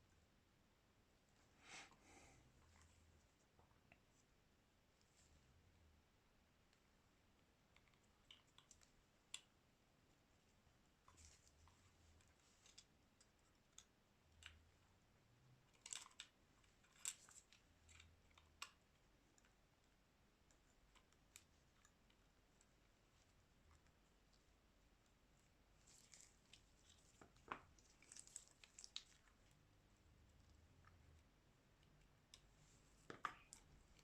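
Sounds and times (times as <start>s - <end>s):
small clicks and taps of plastic: 31.8s - 34.0s.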